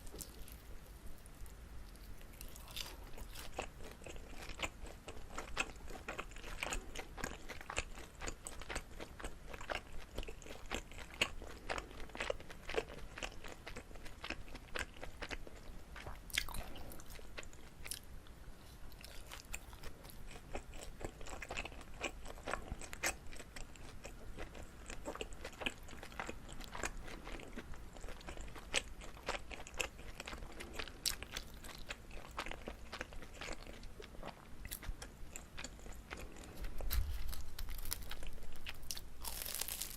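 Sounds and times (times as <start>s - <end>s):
biting food: 35.5s - 39.9s.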